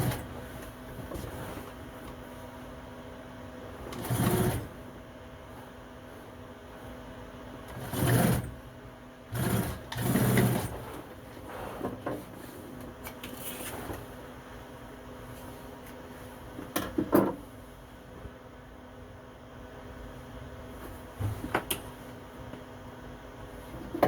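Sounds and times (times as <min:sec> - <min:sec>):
sewing machine running: 0:03.9 - 0:04.7, 0:07.7 - 0:08.6, 0:09.3 - 0:10.8.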